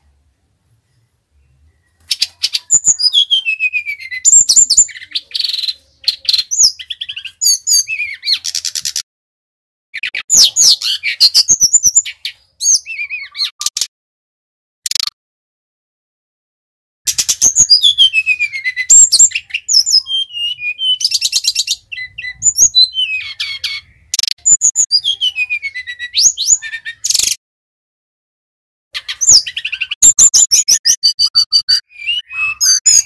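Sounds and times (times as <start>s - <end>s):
bird singing whistled trills: 1.3s - 9.0s, 10.0s - 13.7s, 17.1s - 27.4s, 29.0s - 33.0s.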